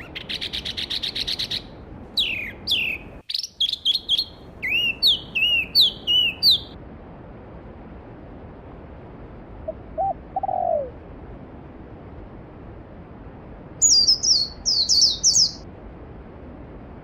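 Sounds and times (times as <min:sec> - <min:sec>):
low bird call: 0:00.0 - 0:06.8, 0:09.6 - 0:11.0
songbird chirps: 0:00.0 - 0:06.8, 0:13.8 - 0:15.7.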